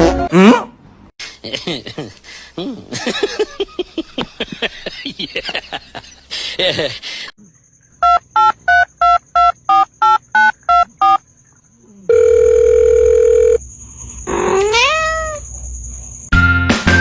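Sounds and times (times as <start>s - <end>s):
steady phone tone: 12.1s - 13.6s
cat meowing: 14.5s - 15.4s
music: 16.3s - 17.0s.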